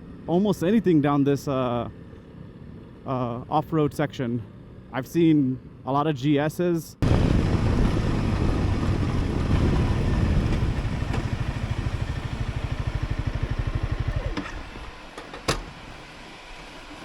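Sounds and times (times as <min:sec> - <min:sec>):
motorcycle engine running: 0:07.0 - 0:14.8.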